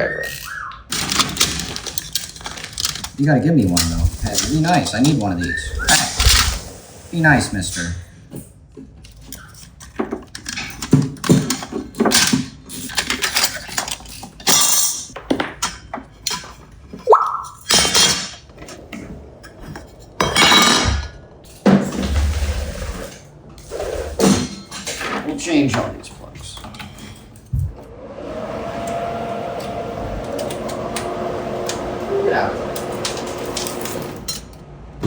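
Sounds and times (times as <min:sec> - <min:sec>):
metal parts clinking: 0:00.3 - 0:06.6, 0:08.3 - 0:16.7, 0:17.6 - 0:21.8, 0:33.6 - 0:34.6.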